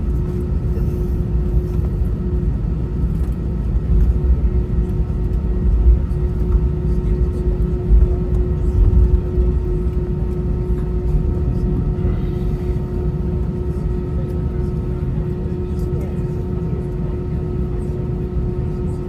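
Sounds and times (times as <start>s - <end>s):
jet engines rumbling in cabin: 0.0s - 19.0s.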